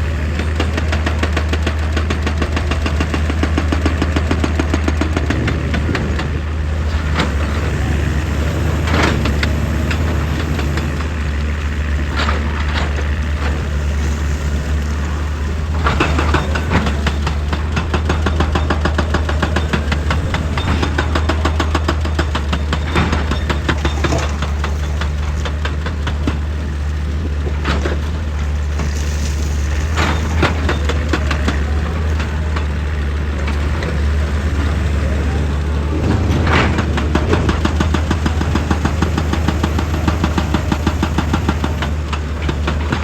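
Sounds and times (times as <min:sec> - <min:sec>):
excavator diesel engine running: 0:00.0 - 0:43.0
heavy clanks on rock: 0:12.0 - 0:32.8.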